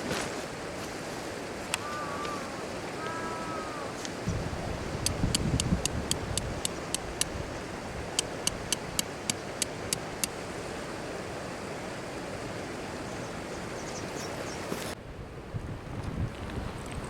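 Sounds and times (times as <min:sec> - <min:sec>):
river rushing: 0:00.0 - 0:14.8
sharp high ticks: 0:05.0 - 0:07.3, 0:08.2 - 0:10.4.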